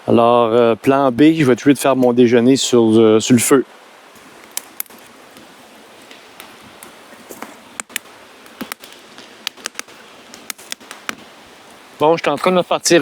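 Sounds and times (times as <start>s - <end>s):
faint steady hiss: 0.0s - 13.0s
kindling crackling and snapping: 3.8s - 13.0s.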